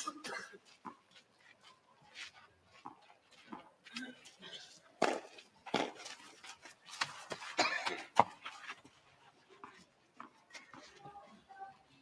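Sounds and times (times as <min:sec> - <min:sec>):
racquets striking tennis ball: 0:05.0 - 0:08.5.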